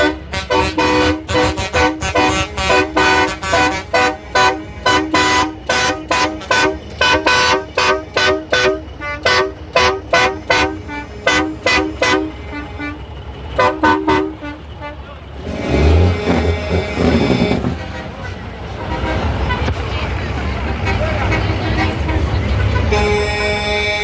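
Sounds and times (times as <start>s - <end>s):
truck horn short blasts: 0.0s - 19.8s, 20.8s - 24.0s
engine rumble: 0.0s - 24.0s.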